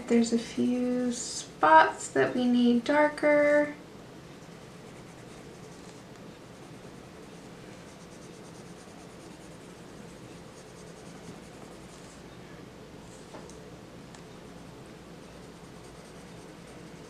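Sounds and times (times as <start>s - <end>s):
low room hum: 0.0s - 17.0s
pencil scratching on paper: 4.6s - 6.0s, 6.6s - 12.2s, 15.3s - 17.0s.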